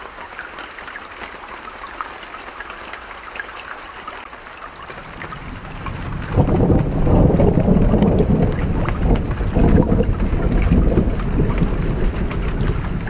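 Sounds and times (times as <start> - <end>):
steady rainfall: 0.0 - 13.0
thunder rumbling: 4.9 - 13.0.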